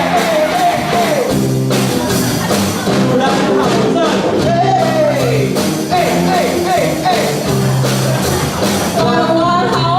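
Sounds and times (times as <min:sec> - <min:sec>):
person singing: 0:00.0 - 0:01.4, 0:08.8 - 0:09.9
live band guitars: 0:00.0 - 0:09.9.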